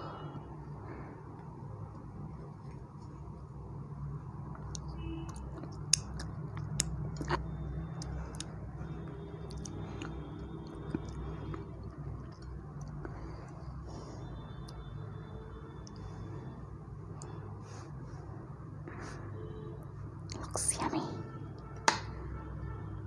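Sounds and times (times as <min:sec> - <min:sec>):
lip smacks: 0:04.5 - 0:13.8
chewing with wet mouth clicks: 0:04.5 - 0:16.2, 0:17.1 - 0:17.4.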